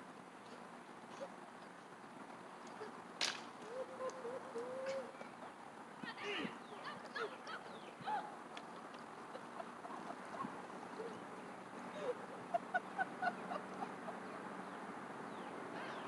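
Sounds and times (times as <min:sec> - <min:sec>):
birds calling: 0:03.6 - 0:16.0.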